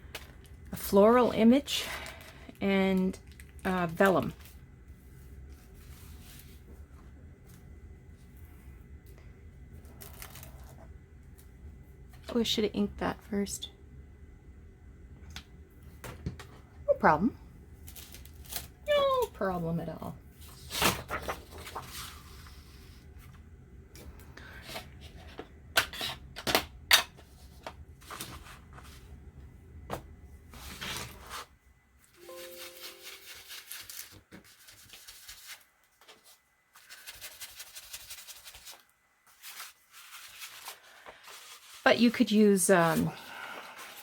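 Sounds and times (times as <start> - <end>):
low steady hum: 0.0 - 44.0
paper rubbing and rustling: 4.4 - 6.7, 20.4 - 22.9, 32.3 - 42.2.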